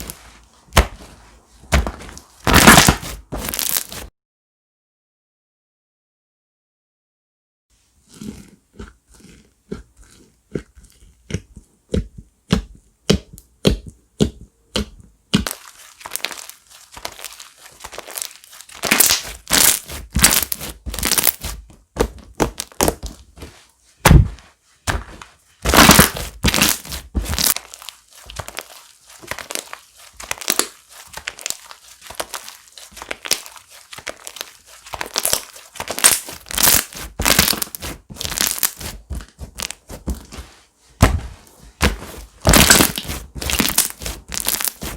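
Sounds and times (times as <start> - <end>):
slime crackling and popping: 0.0 - 1.0, 1.7 - 4.1, 15.4 - 23.2, 25.6 - 39.9, 41.8 - 44.9.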